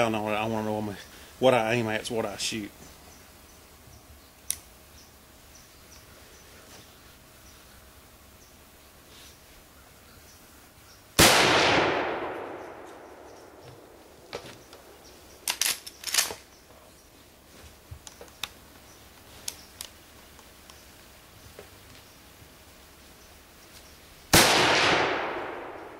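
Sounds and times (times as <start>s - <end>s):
rifle shot echoing: 11.2s - 14.0s, 24.3s - 25.9s.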